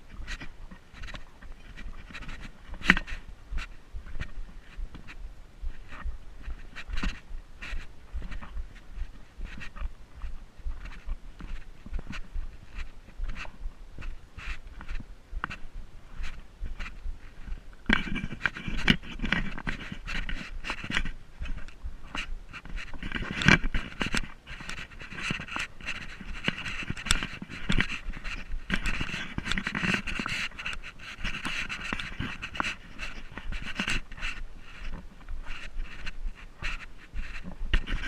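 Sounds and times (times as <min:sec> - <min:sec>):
clicks and knocks of steps: 0:00.0 - 0:38.0
rapid panting breaths: 0:00.2 - 0:38.0.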